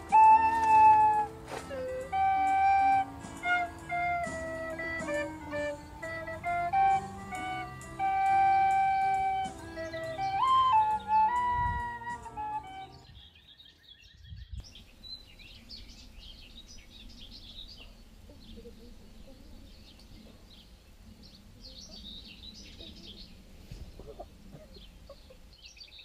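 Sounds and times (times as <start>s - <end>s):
songbirds chirping: 0.0s - 26.0s
faint low outdoor rumble: 14.4s - 26.0s.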